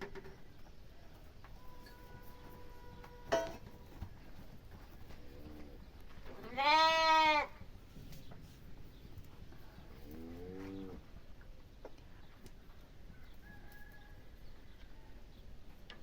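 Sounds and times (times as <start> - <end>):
farm animal bleating: 5.3 - 7.6.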